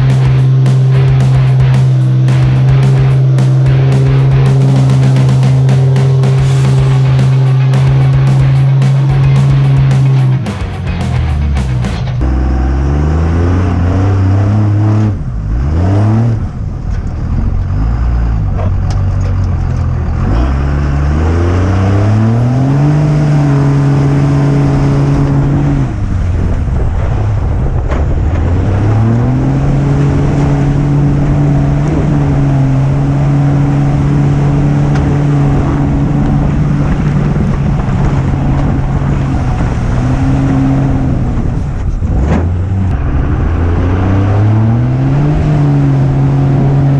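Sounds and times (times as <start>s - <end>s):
truck engine revving: 0.0s - 16.4s, 28.1s - 46.9s.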